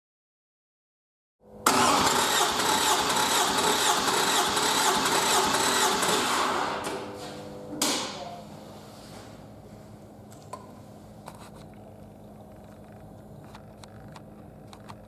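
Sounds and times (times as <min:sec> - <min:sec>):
engine cranking by starter: 0:01.6 - 0:07.1.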